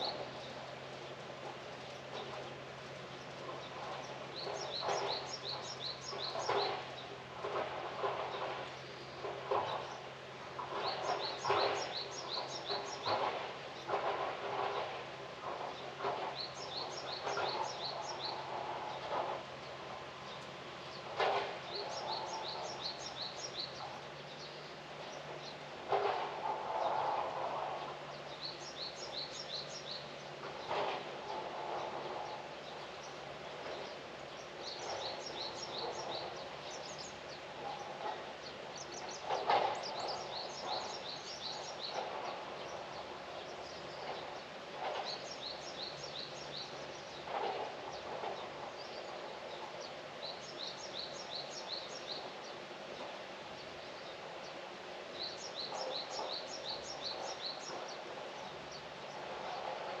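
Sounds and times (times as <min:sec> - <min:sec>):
outdoor background noise: 0:00.0 - 1:00.0.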